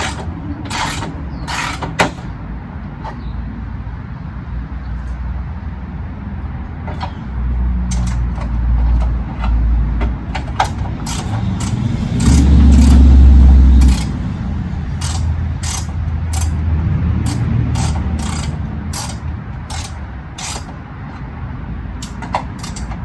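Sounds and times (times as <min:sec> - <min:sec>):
ratchet wrench clicking: 0:00.0 - 0:02.3, 0:07.9 - 0:14.2, 0:15.0 - 0:16.6, 0:17.2 - 0:21.3, 0:22.0 - 0:23.0.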